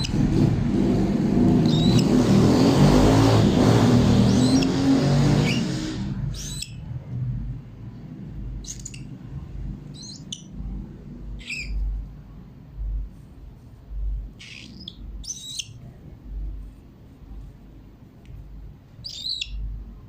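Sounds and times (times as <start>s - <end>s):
cockatiel chirping and squawking: 1.6s - 2.1s, 4.1s - 6.8s, 9.9s - 10.5s, 11.4s - 11.9s, 14.4s - 15.8s, 19.0s - 19.7s.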